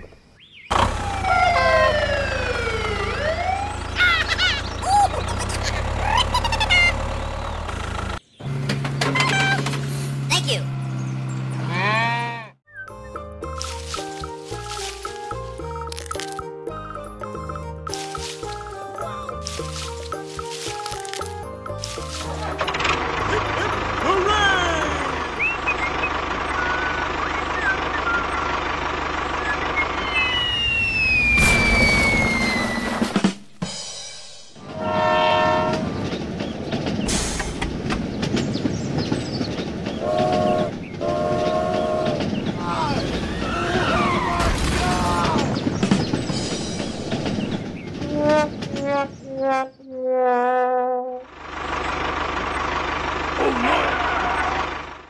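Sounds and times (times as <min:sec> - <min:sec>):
tractor engine drone: 0:00.7 - 0:12.5, 0:13.2 - 0:33.7, 0:34.5 - 0:55.0
high whistle falling in pitch: 0:29.9 - 0:33.2
explosion: 0:31.1 - 0:33.4
sad trombone sound effect: 0:34.6 - 0:35.9, 0:48.0 - 0:51.3.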